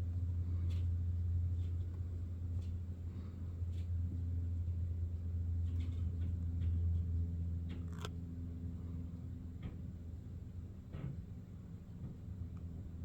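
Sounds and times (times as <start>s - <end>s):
low machine-like hum: 0.0s - 13.0s.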